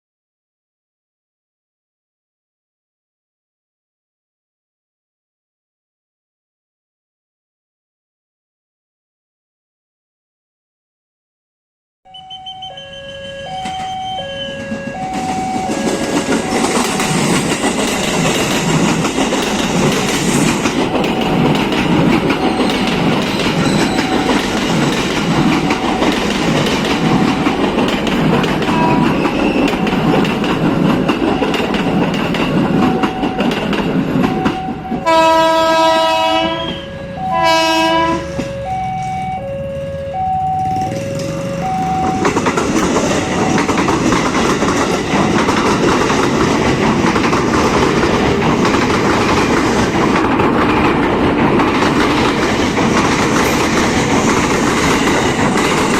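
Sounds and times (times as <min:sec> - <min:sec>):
train horn blasts: 0:12.1 - 0:16.6, 0:28.6 - 0:29.2, 0:34.5 - 0:42.2
two-tone level crossing alarm: 0:12.1 - 0:19.6, 0:20.6 - 0:45.5
train wheels rushing on rails: 0:13.5 - 0:39.1, 0:40.6 - 0:55.9.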